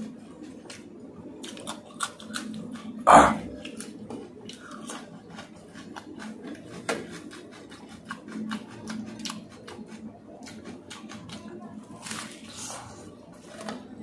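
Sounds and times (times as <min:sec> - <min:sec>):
person chewing food: 0:00.0 - 0:11.4.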